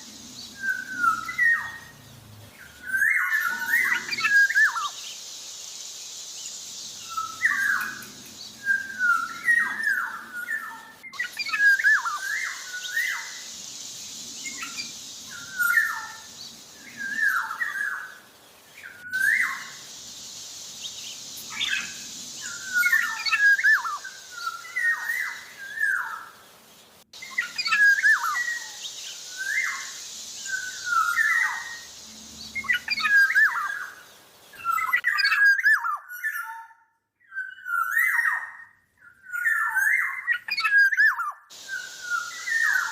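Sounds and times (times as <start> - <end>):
steady high hiss: 0.0 - 36.2, 37.6 - 42.9
oriole singing whistled phrases: 18.9 - 19.9, 27.2 - 31.9, 34.6 - 42.9.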